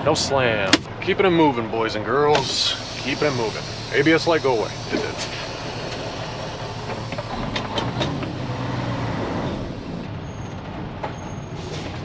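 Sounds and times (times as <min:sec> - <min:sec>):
truck diesel engine running: 0:02.3 - 0:10.1
sharp clicks and rattles: 0:02.4 - 0:10.1.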